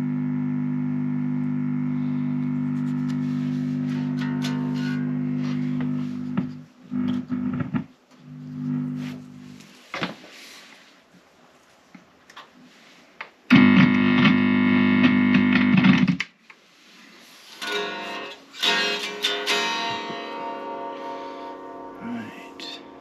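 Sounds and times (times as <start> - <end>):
electric guitar chords: 0.0 - 9.7, 13.5 - 16.3, 17.5 - 23.0.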